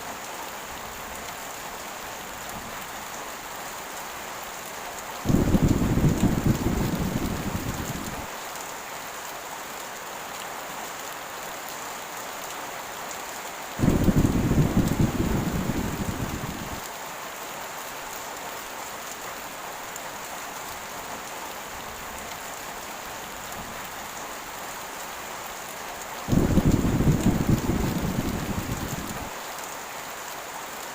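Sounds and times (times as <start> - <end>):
heavy rain: 0.0 - 30.9
thunder rolling: 5.3 - 8.3, 13.8 - 16.8, 26.3 - 29.3.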